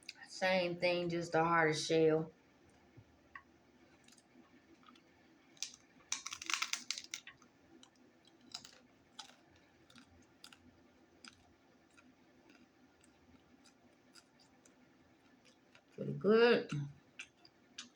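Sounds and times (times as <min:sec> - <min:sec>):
crunching taco shell: 0:03.8 - 0:16.0, 0:16.8 - 0:17.9.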